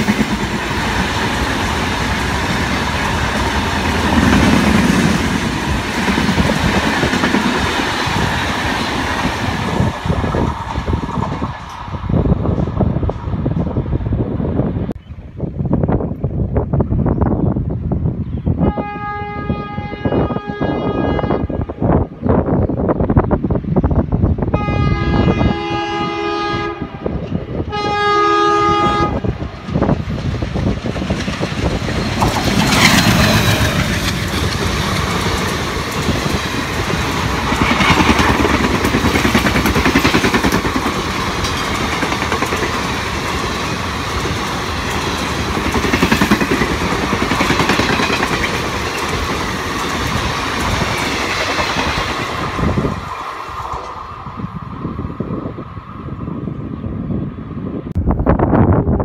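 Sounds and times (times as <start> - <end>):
diesel locomotive passing: 0.0 - 59.0
locomotive horn: 18.6 - 22.1, 24.5 - 29.4.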